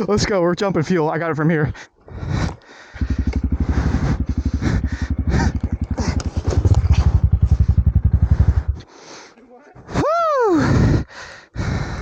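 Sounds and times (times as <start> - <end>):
motorcycle engine running: 3.0 - 8.9.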